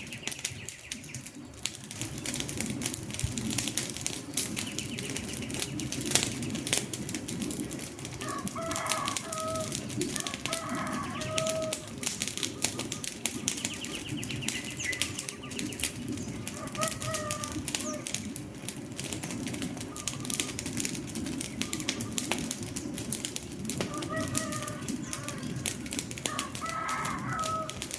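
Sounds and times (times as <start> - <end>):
wood fire crackling and popping: 0.0 - 27.9
bird calling: 8.2 - 18.2, 19.8 - 20.8, 21.4 - 22.5, 23.8 - 27.9.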